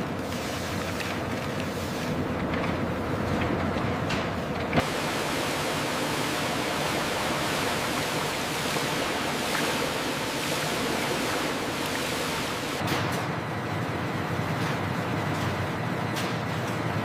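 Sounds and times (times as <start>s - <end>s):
rushing water hiss: 4.8s - 12.8s.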